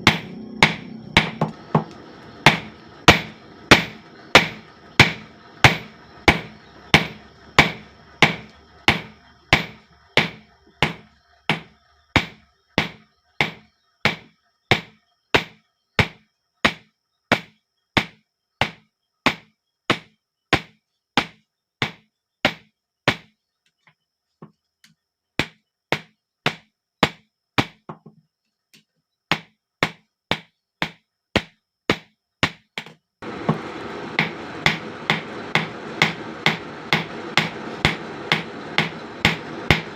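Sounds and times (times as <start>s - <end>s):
hammer striking hot steel on anvil: 0.0s - 16.1s, 33.2s - 39.9s.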